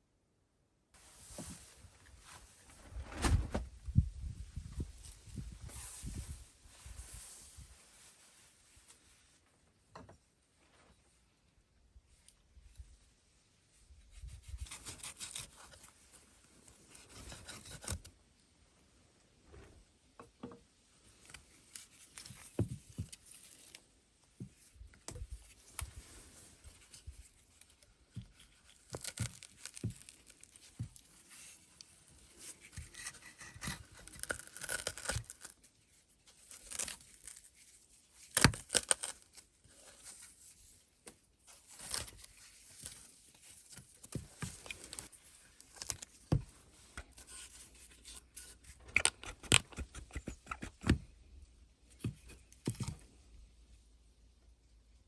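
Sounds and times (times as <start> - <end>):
rustling and tearing: 14.1 - 18.1, 21.1 - 51.0.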